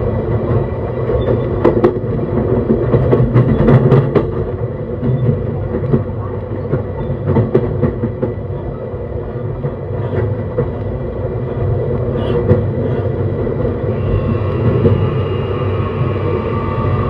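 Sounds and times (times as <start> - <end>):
train wheel-on-rail rumble: 0.0 - 17.0
faint high whine: 13.8 - 17.0.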